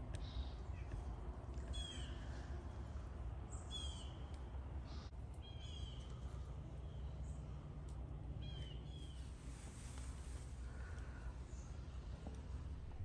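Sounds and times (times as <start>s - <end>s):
small bird calling: 1.7s - 2.4s, 3.5s - 4.3s, 4.9s - 7.5s.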